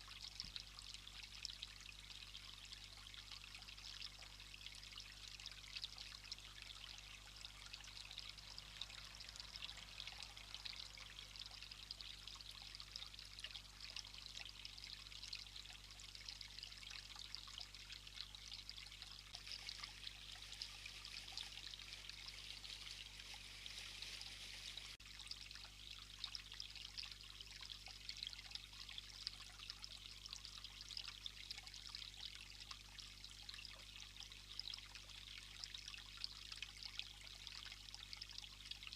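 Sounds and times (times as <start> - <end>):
water trickling: 0.0 - 38.9
fine crackle: 19.4 - 25.0.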